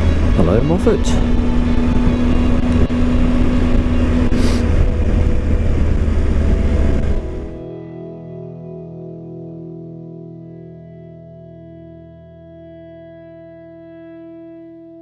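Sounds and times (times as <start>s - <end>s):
motorcycle engine running: 0.0s - 7.7s
wind and road noise: 0.0s - 7.8s.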